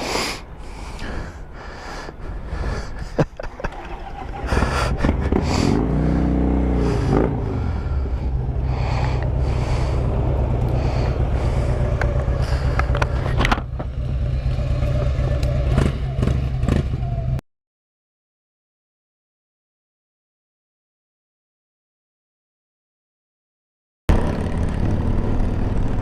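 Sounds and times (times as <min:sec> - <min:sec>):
motorcycle engine rumbling: 0:00.5 - 0:17.4, 0:24.1 - 0:26.0.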